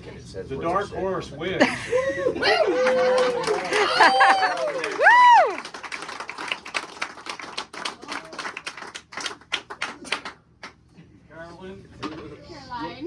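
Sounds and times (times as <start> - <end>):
people clapping: 2.4 - 10.8.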